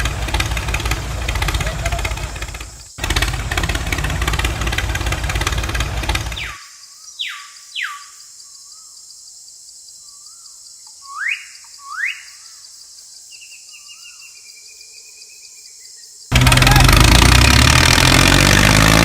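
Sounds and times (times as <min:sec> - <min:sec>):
bird whistles: 0:11.0 - 0:12.4.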